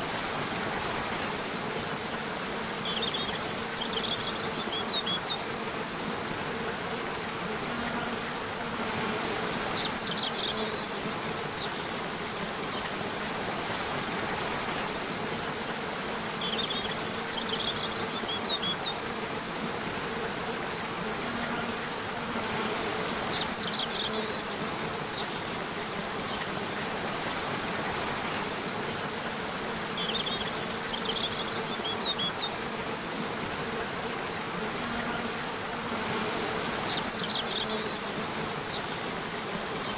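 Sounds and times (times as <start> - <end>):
even hiss: 0.0 - 39.9
insect buzz: 0.0 - 39.9.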